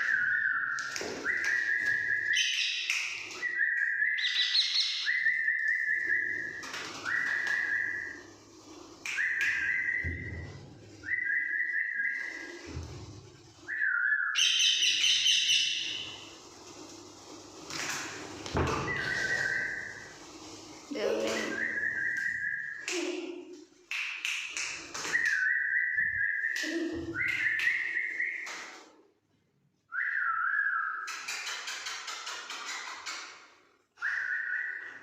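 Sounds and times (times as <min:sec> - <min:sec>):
whistled notes: 0:00.0 - 0:08.3, 0:09.0 - 0:12.8, 0:13.6 - 0:16.1, 0:18.7 - 0:20.1, 0:20.9 - 0:23.1, 0:25.0 - 0:28.7, 0:29.9 - 0:31.1, 0:34.0 - 0:35.0.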